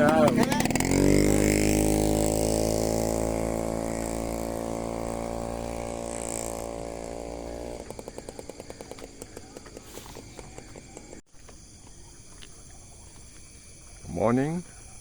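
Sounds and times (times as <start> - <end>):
small motorcycle engine: 0.0 - 11.5.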